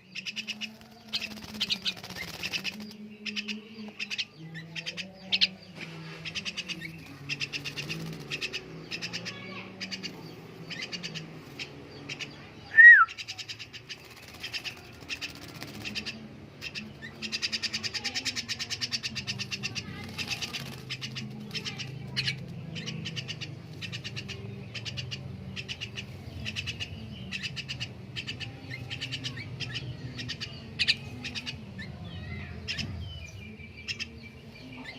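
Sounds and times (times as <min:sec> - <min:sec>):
bird chirping: 0:00.0 - 0:34.9
bird wings fluttering: 0:00.5 - 0:03.0, 0:06.9 - 0:08.6, 0:13.8 - 0:16.2, 0:20.0 - 0:22.6
short falling whistle: 0:12.8 - 0:13.1.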